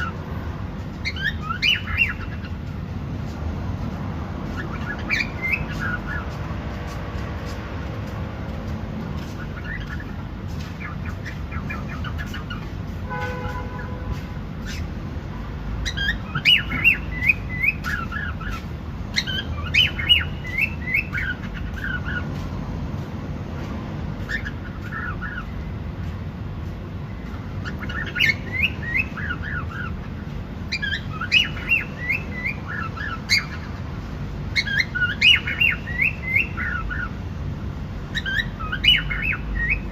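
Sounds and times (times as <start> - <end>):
cockatiel chirping: 1.0 - 2.6, 4.6 - 6.3, 14.6 - 14.9, 15.8 - 22.2, 27.6 - 30.0, 30.7 - 33.7, 34.5 - 37.1, 38.1 - 39.9.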